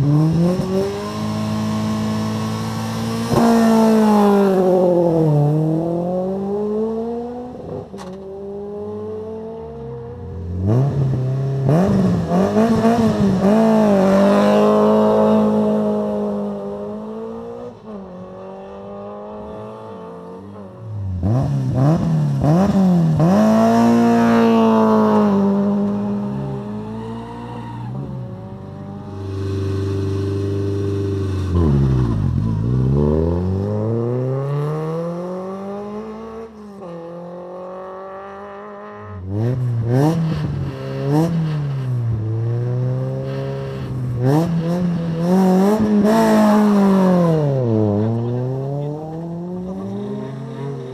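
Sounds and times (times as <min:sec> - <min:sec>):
rally car engines revving: 0:00.0 - 0:50.9.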